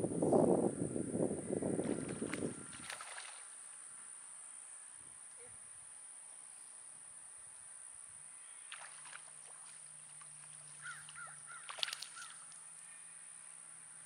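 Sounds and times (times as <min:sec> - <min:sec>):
bird calling: 0:10.1 - 0:13.5.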